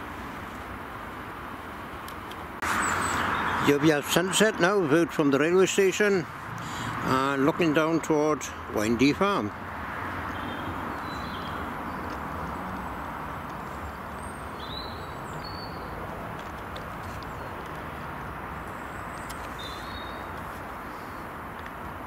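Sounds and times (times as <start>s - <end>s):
high bird chirps: 14.2s - 16.0s, 18.7s - 20.4s.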